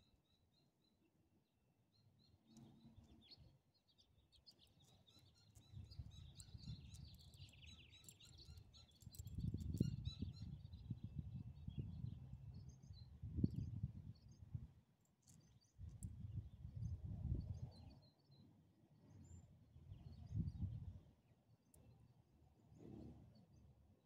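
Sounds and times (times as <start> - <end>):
small birds chirping: 1.9 - 18.5.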